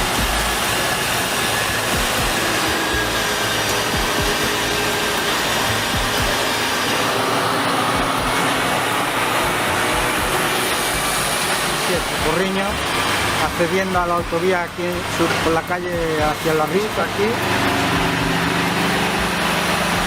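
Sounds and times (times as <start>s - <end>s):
constant rushing noise: 0.0s - 20.0s
truck engine running: 0.0s - 20.0s.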